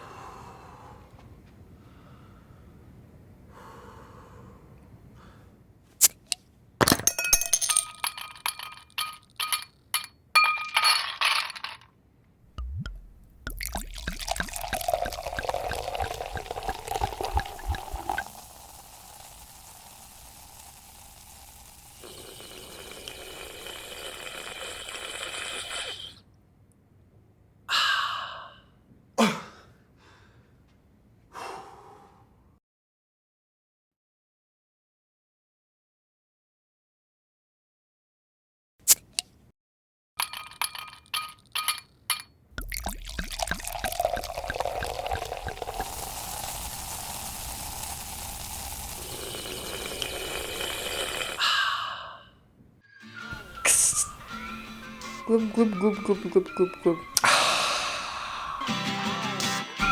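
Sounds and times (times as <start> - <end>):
vocal clicks and clinks: 12.6 - 18.4, 40.2 - 46.2
fizzing hiss: 12.8 - 26.0, 42.6 - 51.4, 53.4 - 54.3
pouring hiss: 12.9 - 26.2, 42.6 - 51.4, 53.4 - 54.4
breathy sip and sigh: 13.1 - 18.4, 22.0 - 26.2, 53.4 - 54.3, 56.0 - 58.7.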